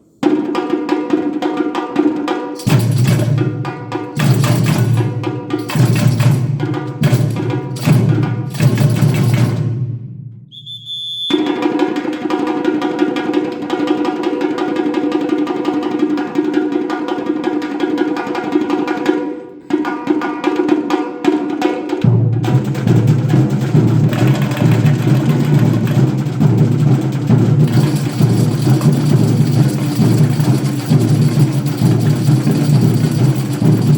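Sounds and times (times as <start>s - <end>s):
fast drumming: 0.2s - 9.8s, 19.9s - 33.9s.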